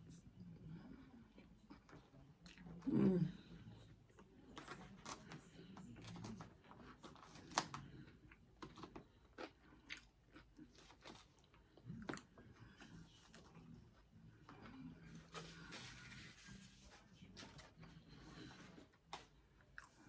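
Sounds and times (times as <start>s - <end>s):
person chewing salad: 8.1s - 13.7s.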